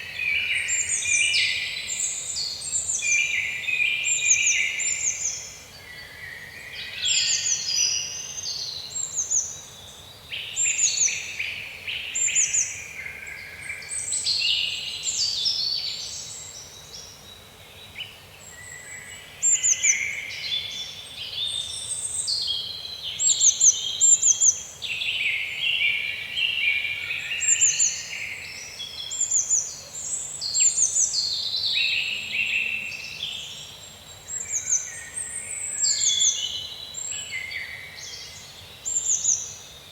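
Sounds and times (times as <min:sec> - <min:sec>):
faint low background hiss: 0:00.0 - 0:39.9
songbirds singing and chirping: 0:00.0 - 0:39.9.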